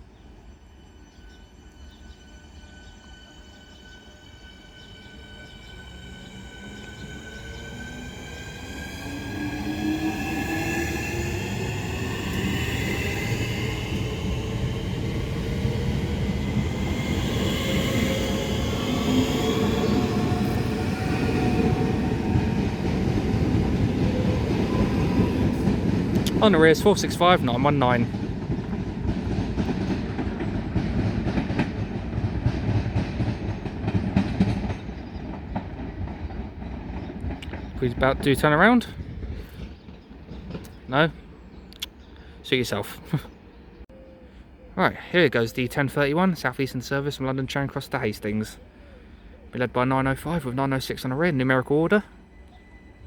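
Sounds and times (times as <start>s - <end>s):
electric train running: 2.3s - 27.5s
wheels rumbling on rails: 4.5s - 41.9s.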